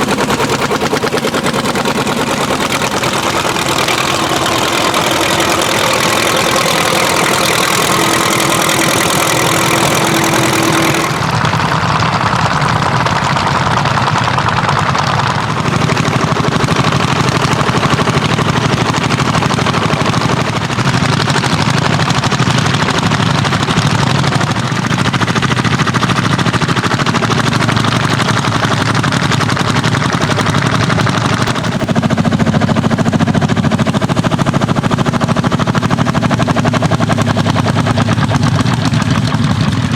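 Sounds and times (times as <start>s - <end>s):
old tractor engines under load: 0.0s - 39.9s.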